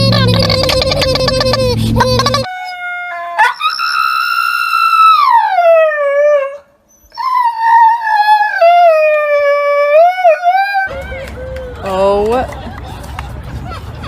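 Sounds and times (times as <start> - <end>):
dog howling: 2.6 - 11.8.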